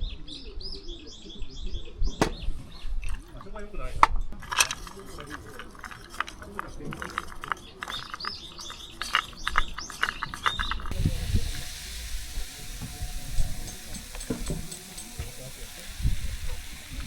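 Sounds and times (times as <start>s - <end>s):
low thumps: 2.2s - 3.2s
steady hiss: 10.9s - 17.0s.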